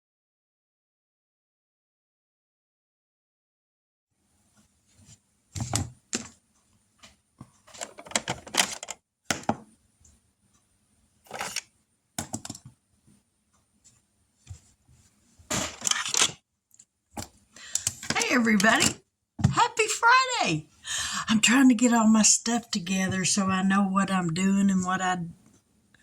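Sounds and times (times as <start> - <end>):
objects being handled: 7.0 - 9.6, 11.2 - 12.8, 13.8 - 19.6.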